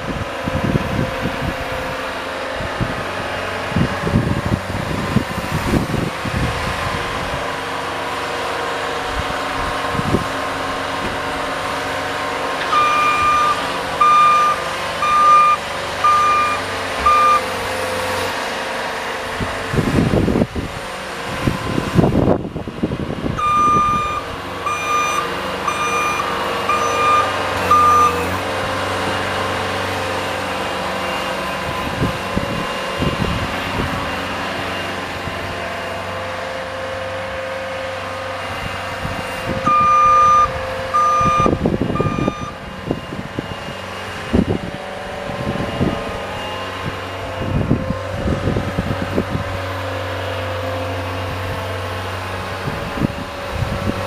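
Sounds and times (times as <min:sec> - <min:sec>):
vehicle engine running: 0:00.0 - 0:54.0
reverse warning beeps: 0:12.6 - 0:17.5, 0:23.4 - 0:28.4, 0:39.7 - 0:42.6.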